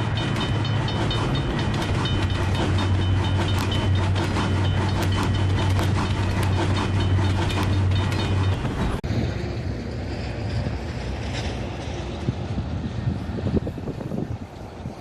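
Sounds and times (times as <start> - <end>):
wheels clattering over rail joints: 0.0 - 9.4
train passing at speed: 0.0 - 15.0
wind on microphone: 10.3 - 15.0.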